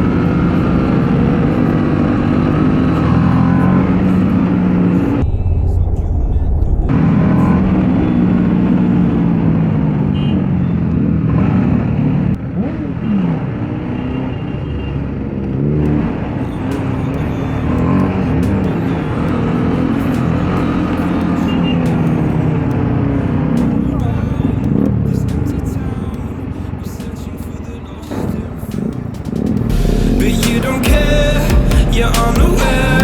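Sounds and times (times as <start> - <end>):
steady rush of noise: 15.2 - 33.0.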